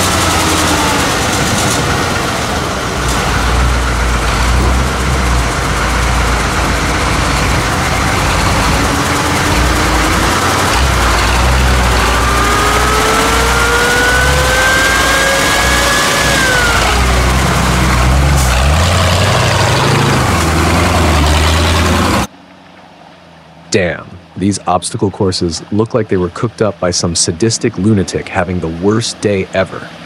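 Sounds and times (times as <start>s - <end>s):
engine revving up: 0.0s - 22.3s
truck engines running loudly: 0.0s - 30.0s.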